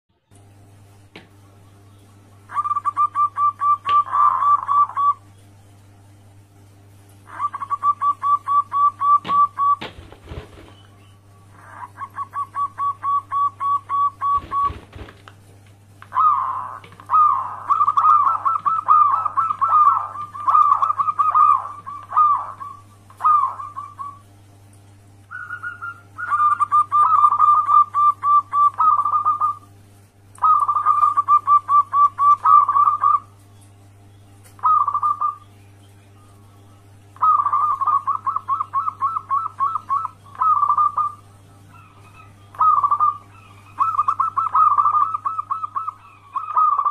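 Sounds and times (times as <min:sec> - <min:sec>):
steady low hum: 0:00.1 - 0:46.9
dove cooing: 0:02.4 - 0:05.3, 0:07.2 - 0:15.2, 0:16.1 - 0:24.3, 0:25.3 - 0:29.7, 0:30.4 - 0:33.3, 0:34.6 - 0:35.5, 0:37.2 - 0:46.9.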